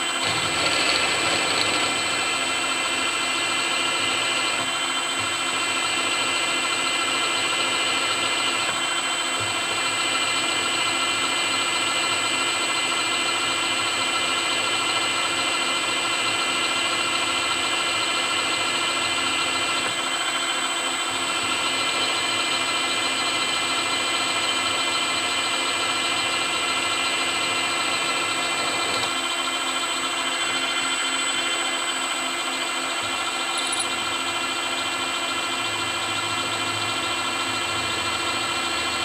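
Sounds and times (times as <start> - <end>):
milling machine spindle drilling: 0.0 - 39.0.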